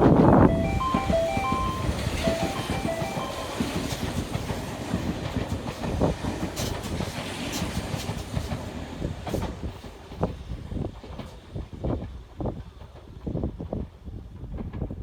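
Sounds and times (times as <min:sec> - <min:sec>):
electric train passing: 0:00.4 - 0:04.9
chiming melody of short tones: 0:00.5 - 0:04.1.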